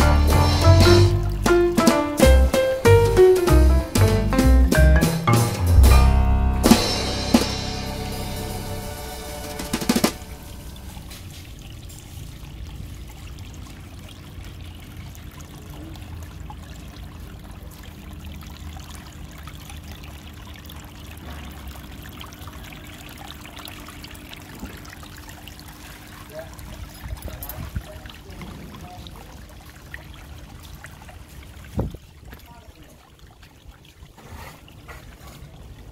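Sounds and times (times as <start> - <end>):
water trickling: 10.2 - 35.9.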